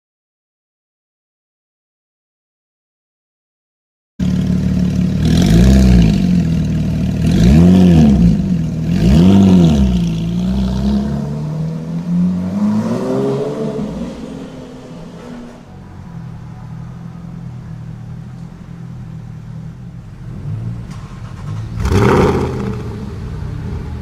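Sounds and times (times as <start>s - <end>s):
sports car engine revving: 4.2s - 15.7s, 18.7s - 24.0s.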